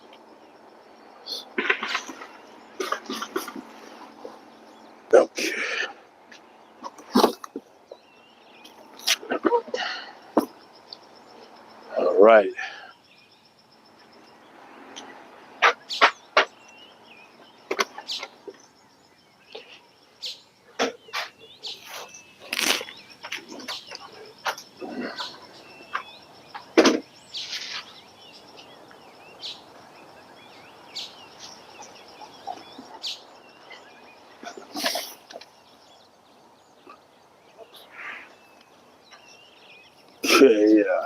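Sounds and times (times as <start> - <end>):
small birds chirping: 0.0 - 41.0
sharp knocks and rustles: 1.6 - 4.4, 25.9 - 27.9.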